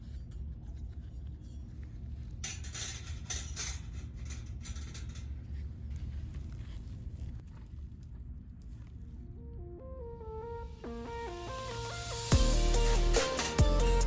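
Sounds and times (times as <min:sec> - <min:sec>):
steady low rumble: 0:08.3 - 0:14.0.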